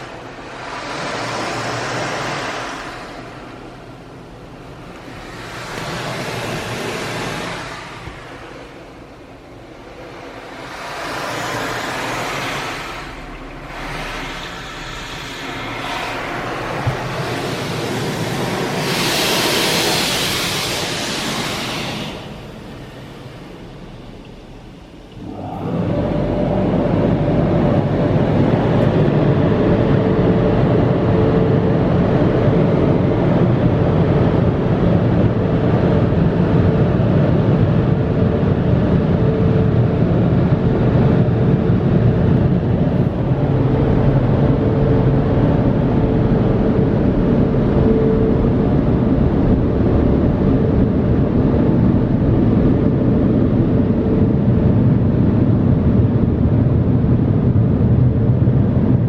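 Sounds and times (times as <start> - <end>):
rushing water noise: 0.0 - 29.7
car wash machinery hum: 0.0 - 59.0.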